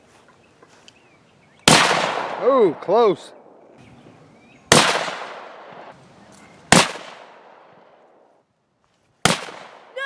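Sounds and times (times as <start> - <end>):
rifle shots with echo: 1.7 - 2.9, 4.7 - 6.0, 6.7 - 7.9, 9.2 - 9.9.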